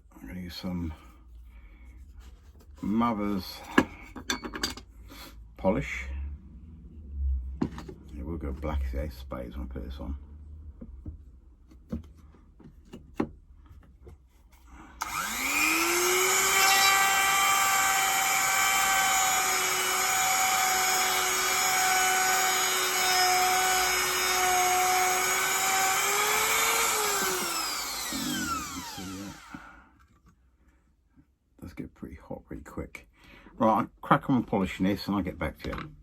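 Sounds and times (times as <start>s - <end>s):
polishing machine motor whine: 15.0s - 29.8s.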